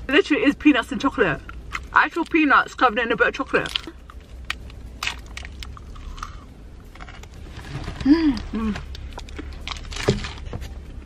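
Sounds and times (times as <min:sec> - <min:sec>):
crunching and chewing: 0:01.4 - 0:02.4, 0:03.6 - 0:11.0.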